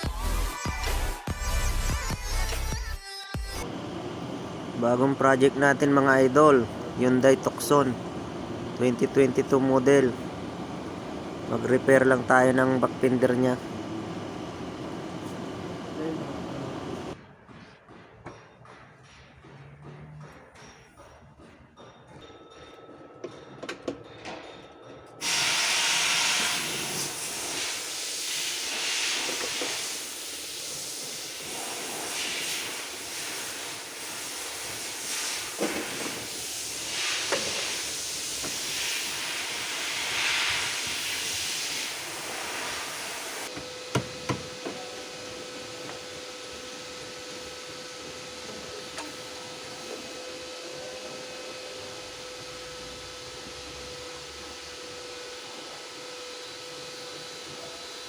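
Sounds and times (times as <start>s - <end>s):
loud uneven hiss: 3.7s - 17.2s, 25.2s - 50.2s.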